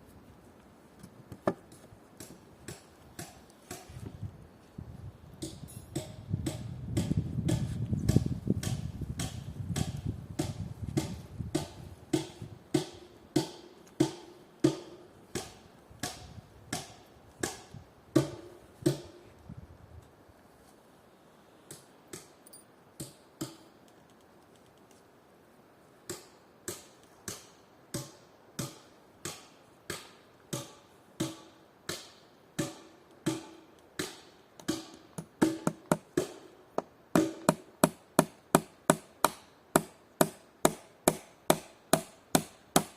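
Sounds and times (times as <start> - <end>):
hammer driving nails into wood: 5.4 - 19.2, 26.1 - 36.4, 37.2 - 42.9.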